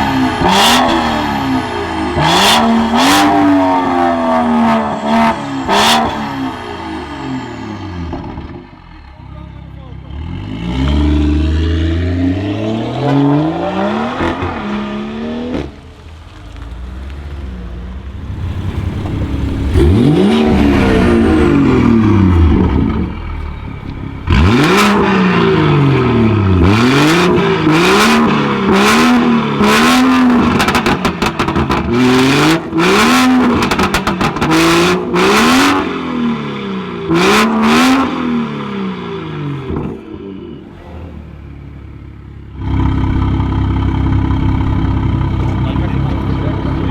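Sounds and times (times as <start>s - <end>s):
car engine revving: 0.0s - 9.1s, 10.1s - 46.9s
exhaust cracks and pops: 15.5s - 20.4s.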